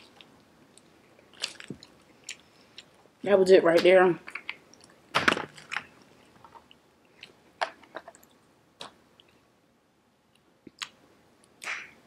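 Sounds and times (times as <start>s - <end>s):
lip smacks: 10.7s - 12.0s.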